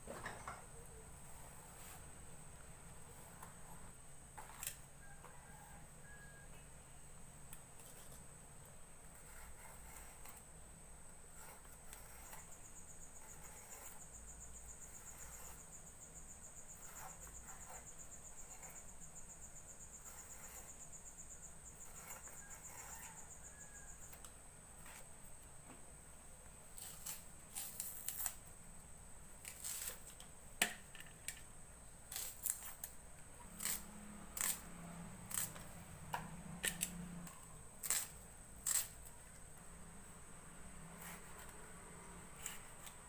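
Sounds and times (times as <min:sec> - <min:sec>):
cricket trilling: 0:03.1 - 0:07.0, 0:11.3 - 0:25.1, 0:26.6 - 0:43.0.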